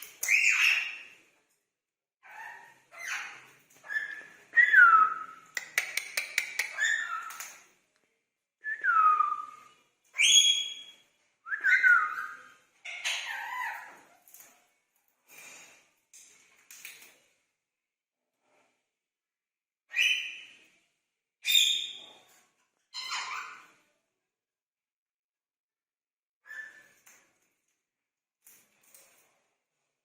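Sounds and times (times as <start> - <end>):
parrots whistling and chattering: 0.0 - 1.2, 2.2 - 7.6, 11.5 - 14.1, 19.9 - 20.5, 23.0 - 23.8.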